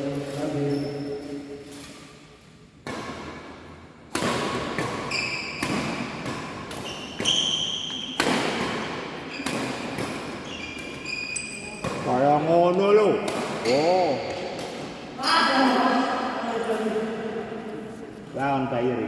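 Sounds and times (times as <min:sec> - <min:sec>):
shoes squeaking on court floor: 0:00.1 - 0:02.4, 0:04.7 - 0:12.3
racket hitting shuttlecock: 0:02.8 - 0:11.1, 0:11.7 - 0:12.1, 0:13.2 - 0:15.8.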